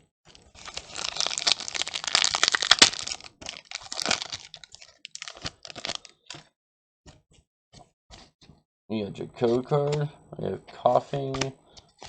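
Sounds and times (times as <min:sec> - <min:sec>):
foil wrapper crinkling: 0:00.3 - 0:06.3.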